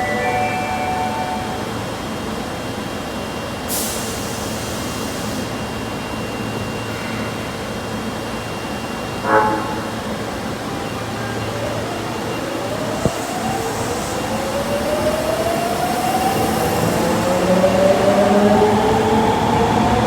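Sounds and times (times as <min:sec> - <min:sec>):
subway train rumble: 0:00.0 - 0:20.0
loud pitched train toot: 0:09.2 - 0:11.8.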